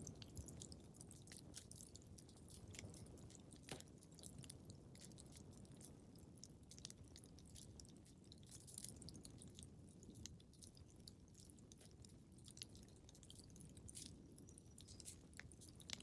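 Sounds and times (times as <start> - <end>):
fireplace fire crackling: 0.0 - 7.1.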